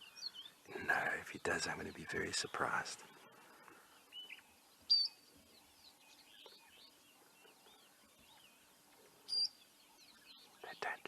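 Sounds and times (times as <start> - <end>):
faint outdoor background noise: 0.0 - 11.0
wild birds calling: 0.0 - 11.0
soft quick bird chirps: 4.0 - 5.2.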